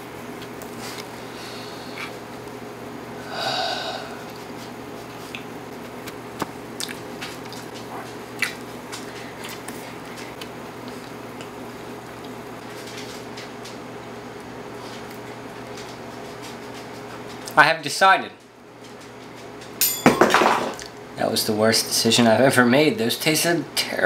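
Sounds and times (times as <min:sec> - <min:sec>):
steady low hum: 0:00.0 - 0:24.0
person chewing: 0:06.8 - 0:11.6.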